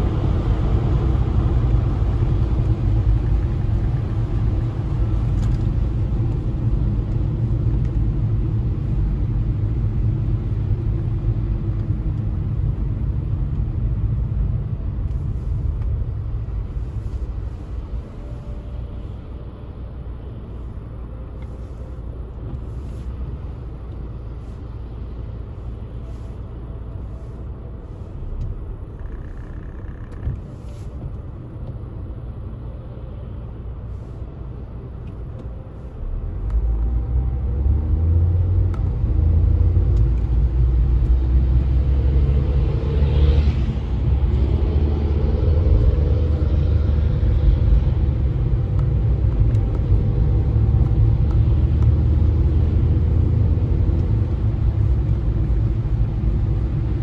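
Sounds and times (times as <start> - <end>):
car engine rumble: 0.0 - 57.0
tyres on road: 0.0 - 57.0.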